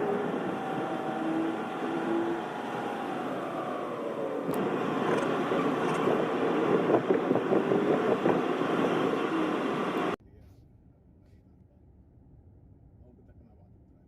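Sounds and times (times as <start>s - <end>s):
engine hum: 0.0s - 10.2s
road vehicle rushing noise: 0.0s - 10.2s.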